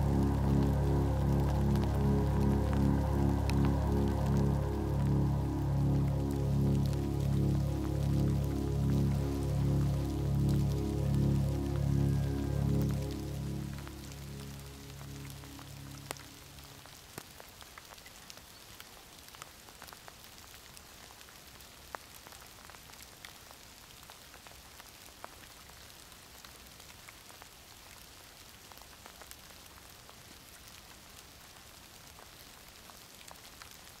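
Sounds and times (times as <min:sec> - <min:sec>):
background music: 0:00.0 - 0:16.9
raindrops ticking: 0:00.0 - 0:25.8
light rain hiss: 0:00.0 - 0:34.0.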